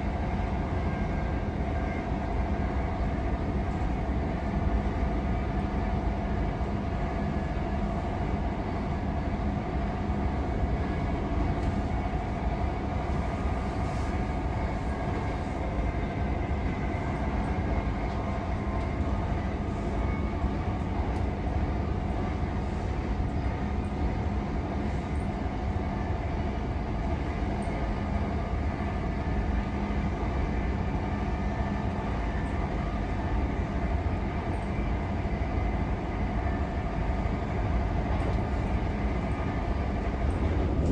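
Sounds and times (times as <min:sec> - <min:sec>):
constant whine: 0:00.0 - 0:40.9
train wheels rumbling on track: 0:09.9 - 0:40.9.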